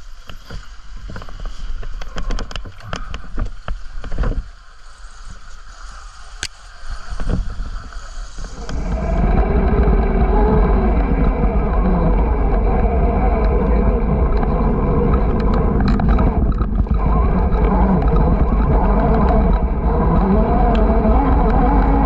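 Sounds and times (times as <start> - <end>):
wind rushing on microphone: 0.0 - 22.0
low rumble: 7.2 - 22.0.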